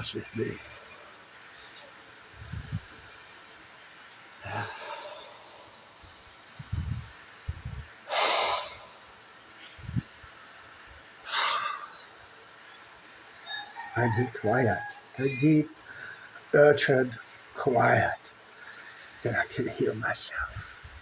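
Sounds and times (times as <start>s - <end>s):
faint bird chirps: 0.0s - 21.0s
sharp noisy exhales: 4.4s - 6.0s, 8.1s - 9.1s, 11.3s - 12.0s
faint low thuds: 6.0s - 7.9s.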